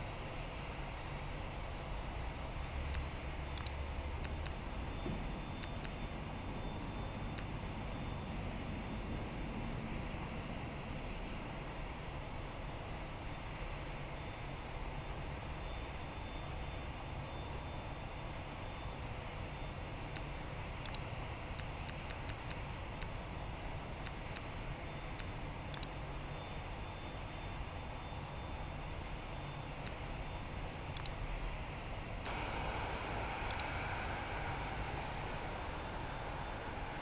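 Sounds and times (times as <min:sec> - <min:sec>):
faint ticks: 0:32.3 - 0:37.0
jet engines running: 0:32.3 - 0:37.0.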